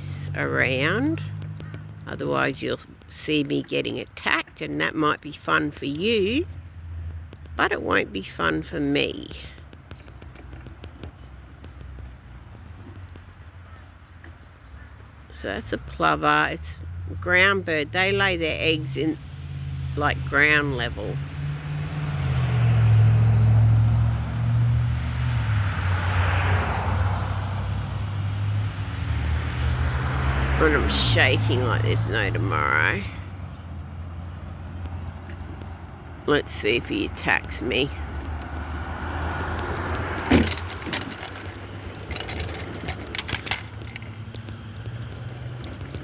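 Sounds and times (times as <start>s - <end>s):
clicks and light rattles: 39.5s - 46.0s.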